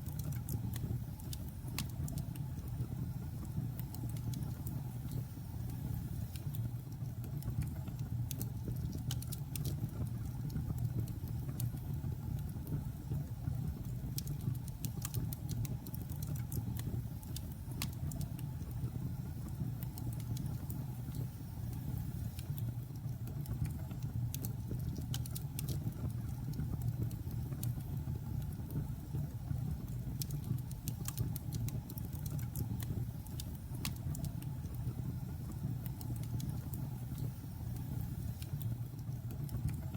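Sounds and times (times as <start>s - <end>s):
wood crackling and popping: 0.0s - 2.7s, 14.0s - 18.8s, 19.4s - 28.9s, 29.8s - 34.9s, 35.5s - 39.9s.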